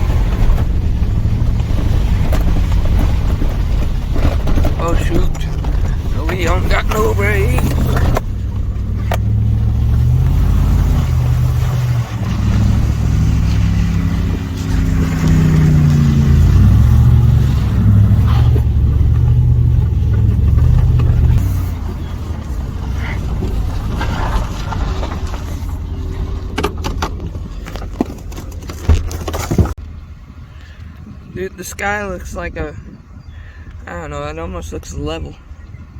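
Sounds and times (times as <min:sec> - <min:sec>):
sharp knocks and rattles: 0:00.0 - 0:10.3, 0:11.7 - 0:29.8
vehicle engine revving: 0:00.0 - 0:29.8.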